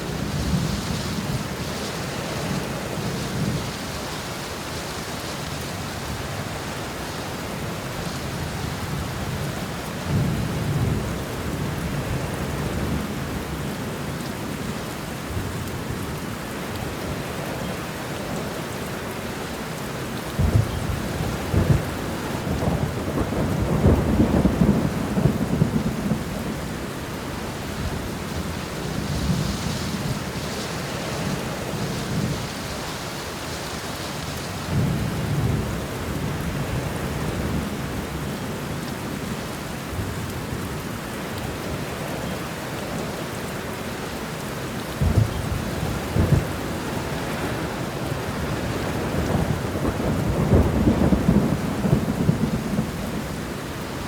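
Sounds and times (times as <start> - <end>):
heavy rain hiss: 0.0 - 54.0
thunder rolling: 20.4 - 26.8, 45.0 - 53.3.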